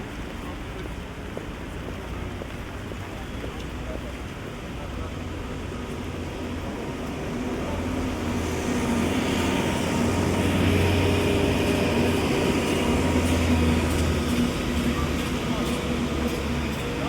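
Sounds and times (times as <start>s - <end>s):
vehicle approaching: 5.1s - 17.0s.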